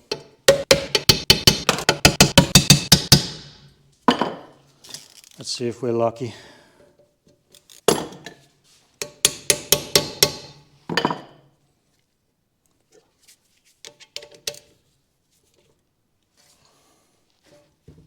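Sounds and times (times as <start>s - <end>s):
hand tools knocking on metal: 0.1s - 3.5s.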